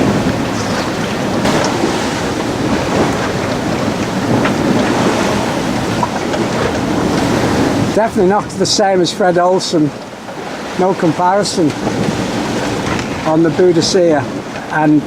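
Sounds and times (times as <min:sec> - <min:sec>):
sea and waves rushing: 0:00.0 - 0:15.0
wind buffeting microphone: 0:00.0 - 0:15.0.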